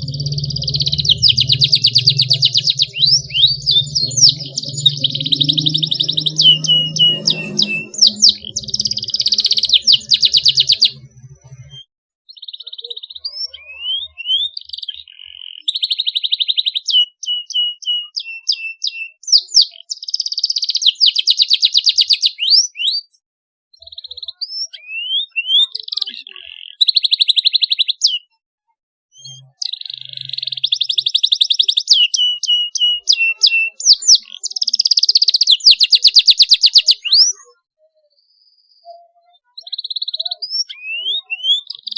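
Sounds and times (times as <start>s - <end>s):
canary singing trills: 0.0s - 28.4s, 29.1s - 41.9s.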